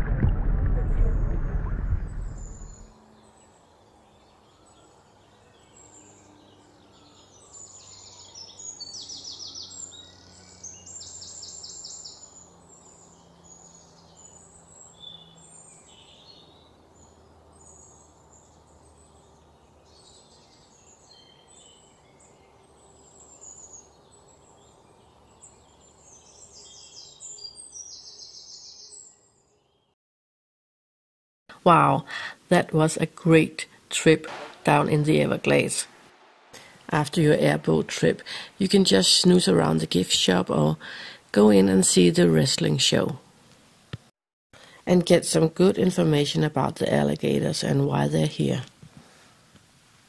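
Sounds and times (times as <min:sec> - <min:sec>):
faint low hum: 0:00.0 - 0:07.9
birds chirping and trilling: 0:01.9 - 0:29.9.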